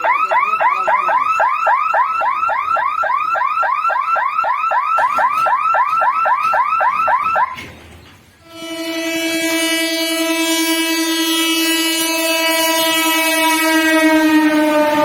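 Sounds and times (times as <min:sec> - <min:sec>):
level crossing alarm chirps: 0:00.0 - 0:07.6.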